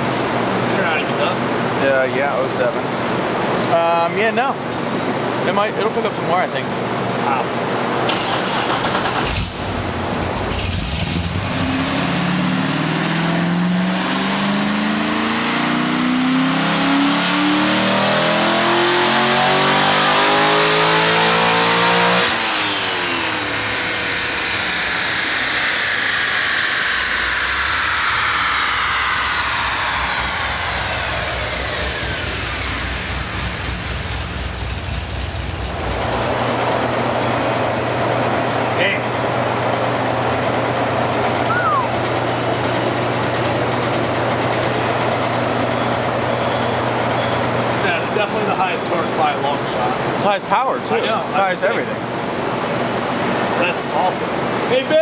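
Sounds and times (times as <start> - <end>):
dyno rollers coasting whine: 0.0 - 55.0
car engine at full throttle: 8.1 - 46.9.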